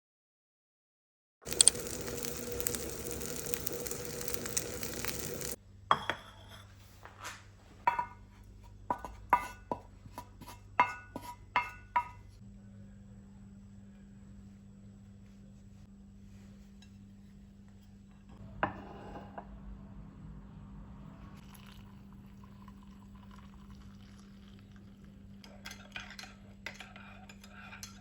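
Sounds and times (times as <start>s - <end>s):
hiss with faint crackling: 1.5s - 5.6s.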